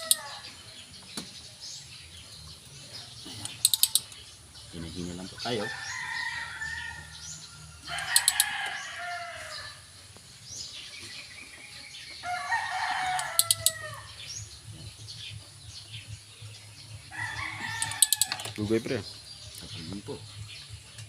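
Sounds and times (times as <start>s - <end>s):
rooster crowing: 0.0s - 0.6s, 5.6s - 9.8s, 12.2s - 14.2s, 17.1s - 18.6s
sharp clicks: 3.4s - 4.2s, 13.2s - 13.8s.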